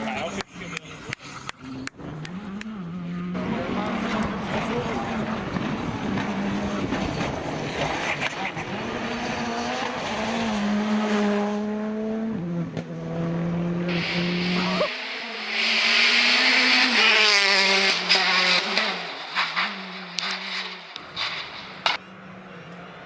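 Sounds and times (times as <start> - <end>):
rally car engine revving: 0.0 - 23.0
loud rushing noise: 13.8 - 22.0.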